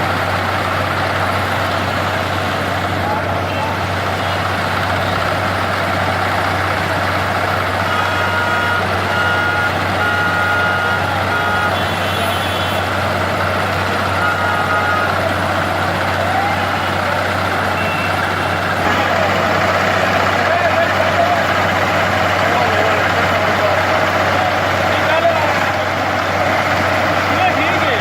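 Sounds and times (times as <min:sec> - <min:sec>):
diesel engine running: 0:00.0 - 0:28.0
reversing alarm beeping: 0:07.8 - 0:12.9.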